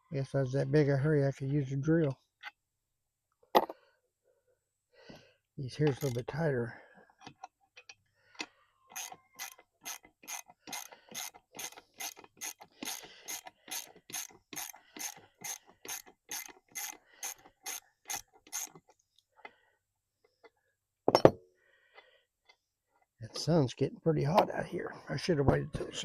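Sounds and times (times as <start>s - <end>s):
ratchet wrench clicking: 5.8s - 6.2s, 8.4s - 18.8s.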